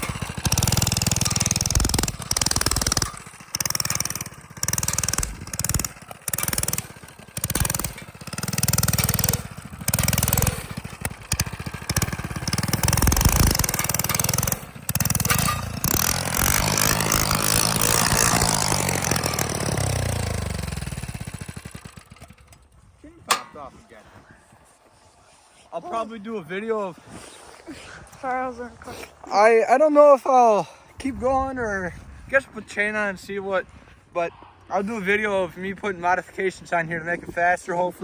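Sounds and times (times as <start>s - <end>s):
mini bike engine revving: 0.0s - 23.5s.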